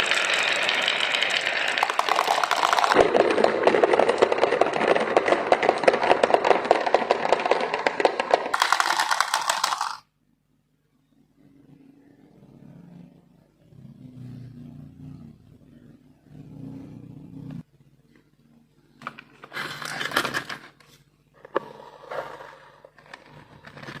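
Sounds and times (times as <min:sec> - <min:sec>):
marbles clattering and clicking: 0:00.0 - 0:10.0
marbles rolling on plastic track: 0:00.0 - 0:10.1.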